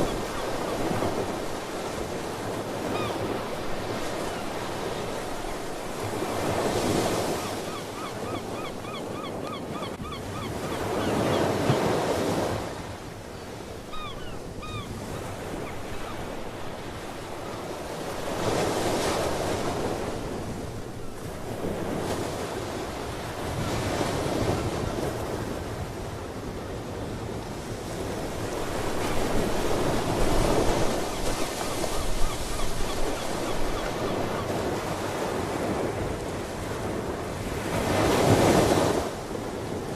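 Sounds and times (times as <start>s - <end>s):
ocean waves breaking: 0.0s - 39.9s
seabirds calling: 2.8s - 12.4s, 13.4s - 17.8s, 30.5s - 34.9s.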